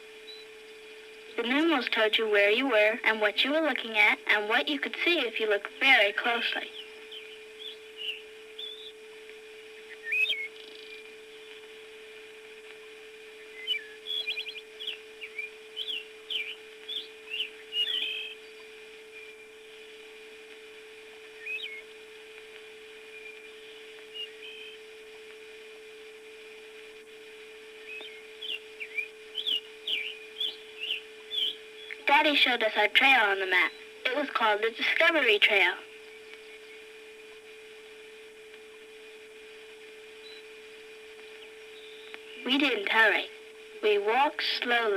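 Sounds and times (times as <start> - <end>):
steady hum: 0.0 - 44.9
birds chirping: 0.2 - 9.0, 13.3 - 19.6, 21.3 - 21.9, 27.8 - 37.0, 41.2 - 44.9.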